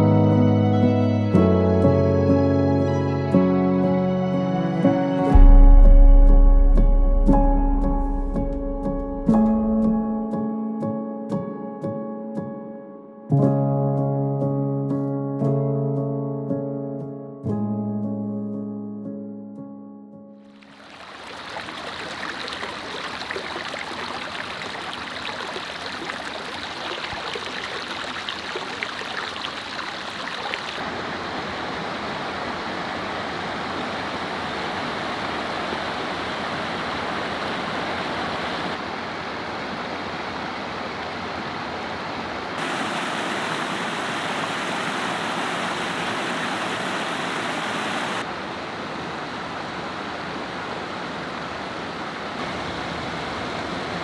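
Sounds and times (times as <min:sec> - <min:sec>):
waterfall and creek rushing: 0:20.6 - 0:54.0.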